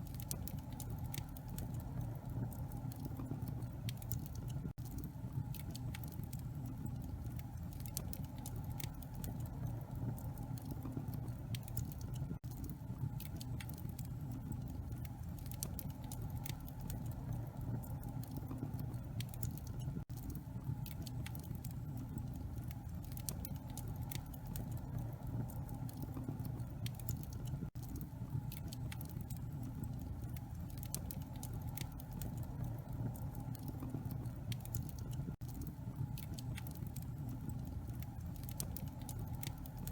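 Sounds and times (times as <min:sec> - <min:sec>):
burning logs crackling and popping: 0:00.0 - 0:39.9
fire low rumble: 0:00.0 - 0:39.9.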